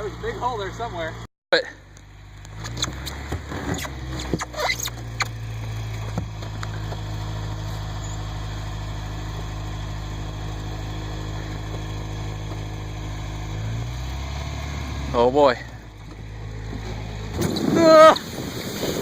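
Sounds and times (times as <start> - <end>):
truck engine running at low revs: 0.0 - 19.0
knocks and clatters: 2.4 - 7.1.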